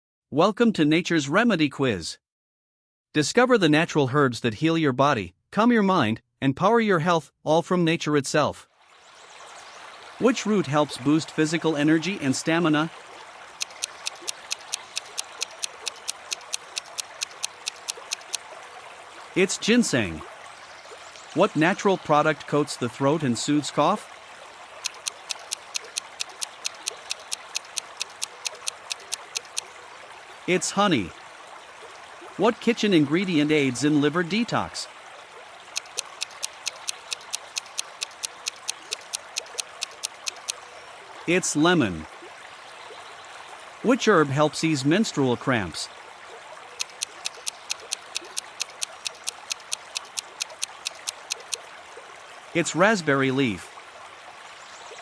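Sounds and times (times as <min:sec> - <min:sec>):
trickling stream water: 0:08.7 - 0:55.0
rapid clock ticking: 0:13.6 - 0:18.4, 0:24.8 - 0:29.7, 0:35.8 - 0:40.6, 0:46.8 - 0:51.6.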